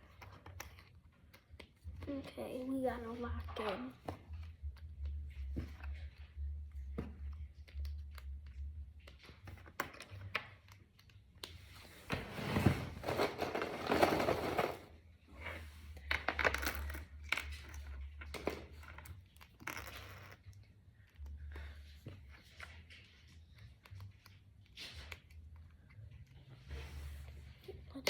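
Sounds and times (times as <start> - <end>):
rattle of loose plastic pieces: 12.7 - 14.9.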